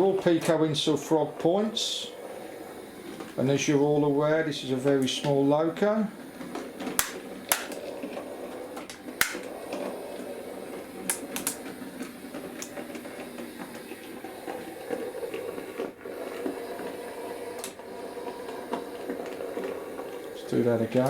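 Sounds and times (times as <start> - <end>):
model train motor whirring: 6.1 - 21.0.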